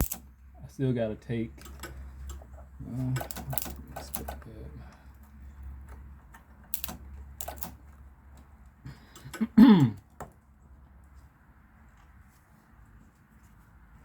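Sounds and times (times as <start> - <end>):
hand tools tapping on metal: 0.0 - 0.2, 1.5 - 10.4.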